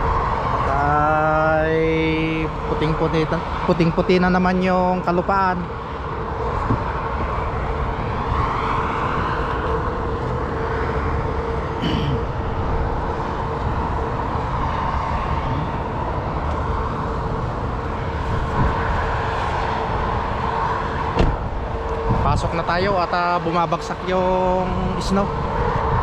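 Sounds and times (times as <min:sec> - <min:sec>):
passing vehicles: 0:00.0 - 0:26.0
wind rumbling on microphone: 0:00.0 - 0:26.0.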